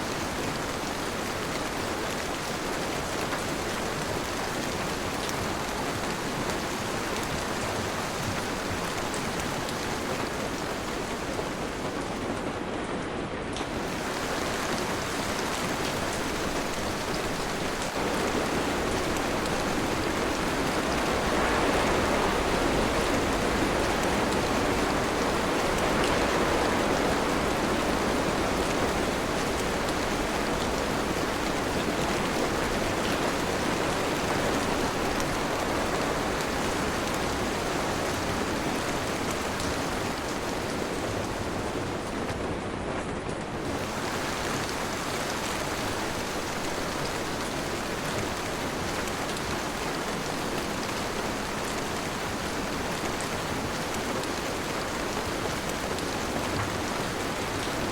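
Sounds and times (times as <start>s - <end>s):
heavy rain: 0.0s - 57.9s.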